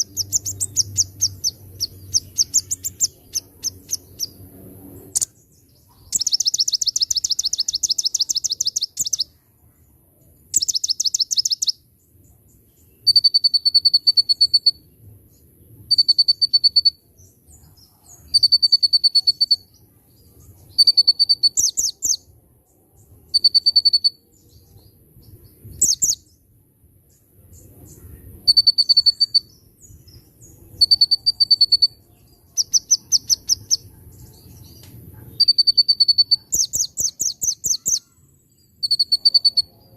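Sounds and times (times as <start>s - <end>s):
songbird singing rapid high notes: 0.0s - 9.4s, 10.5s - 11.8s, 20.5s - 22.3s, 25.5s - 26.3s, 27.9s - 39.9s.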